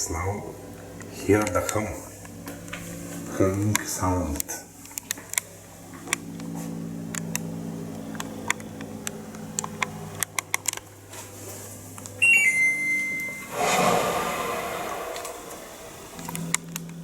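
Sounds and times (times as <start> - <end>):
air conditioner humming: 0.0 - 6.0, 6.8 - 17.0
two-step electronic beep: 12.2 - 13.5
rush of noise: 13.1 - 16.5.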